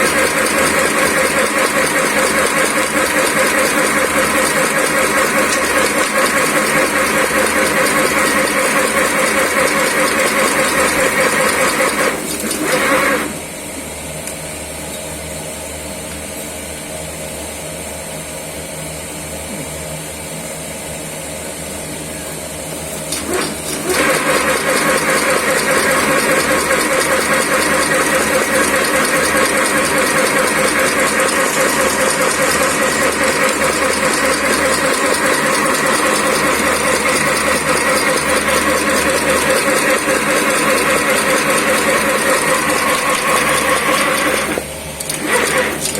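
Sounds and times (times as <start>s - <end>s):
machine rapid mechanical rhythm: 0.0s - 13.4s, 23.0s - 45.9s
machine low hum: 0.0s - 45.9s.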